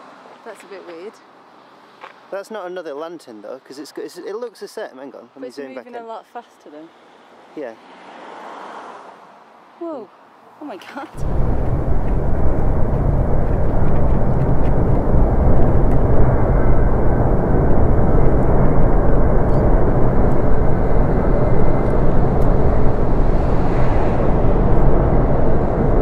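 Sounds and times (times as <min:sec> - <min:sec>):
loud rumbling from the sky: 0:11.2 - 0:26.0.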